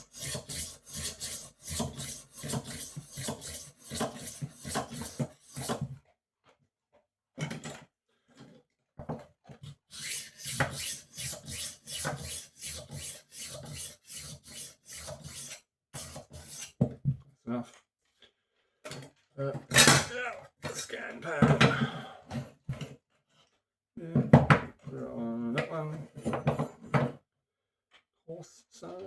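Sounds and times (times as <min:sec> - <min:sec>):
knife sharpener rasping: 0:00.0 - 0:05.8, 0:09.9 - 0:16.7.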